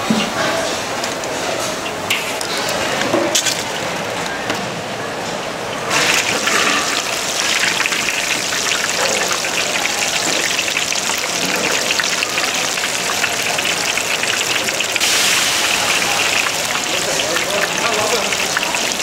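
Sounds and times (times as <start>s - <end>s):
food sizzling in hot oil: 5.8s - 19.0s.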